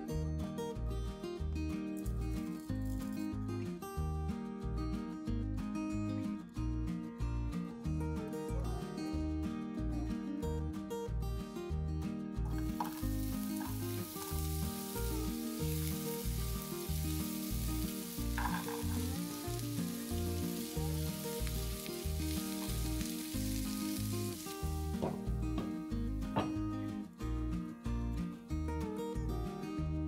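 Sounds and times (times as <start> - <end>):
vegetables sizzling in oil: 12.5 - 26.2
background music with steady beat: 23.4 - 28.8.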